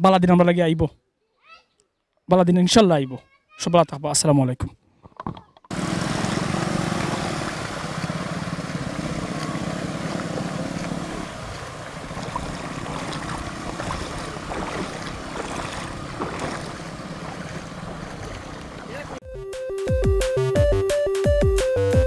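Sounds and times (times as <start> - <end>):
rushing wind: 5.7 - 18.9
low engine drone: 5.7 - 19.2
water noise: 5.7 - 19.2.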